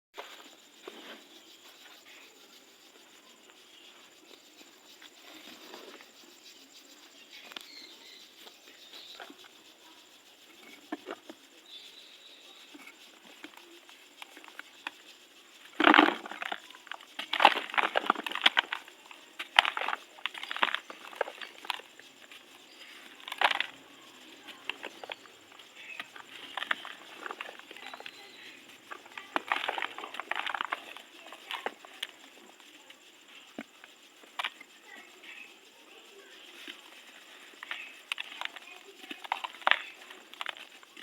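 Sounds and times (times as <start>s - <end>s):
dry material crunching: 15.7s - 32.2s, 36.6s - 41.0s.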